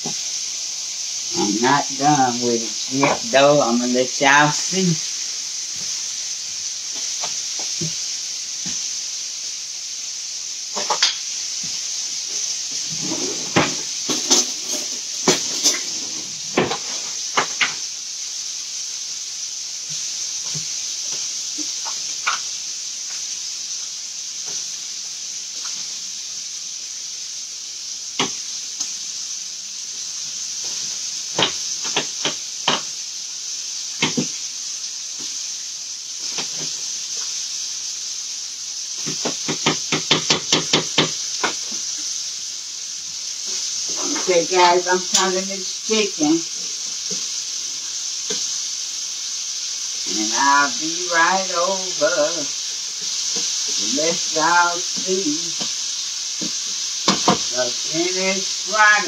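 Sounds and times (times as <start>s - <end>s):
chicken sizzling in a pan: 0.0s - 59.0s
utensils clicking on cookware: 10.7s - 11.3s, 39.0s - 41.8s.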